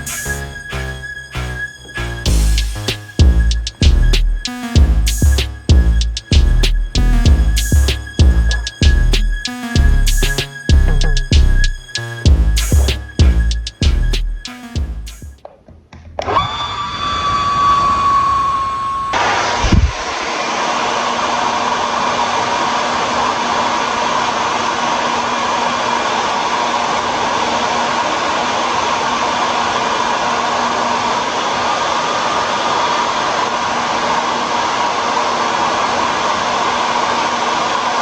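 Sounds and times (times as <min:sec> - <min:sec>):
hair dryer running: 0:16.3 - 0:38.0.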